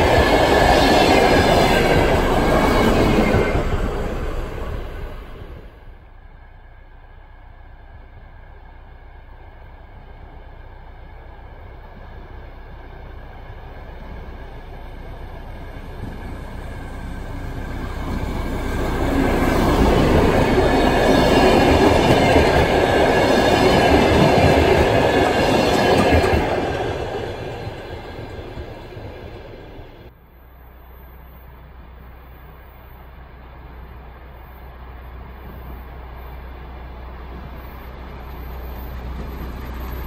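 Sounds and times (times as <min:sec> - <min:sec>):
diesel train passing: 0:00.0 - 0:40.0.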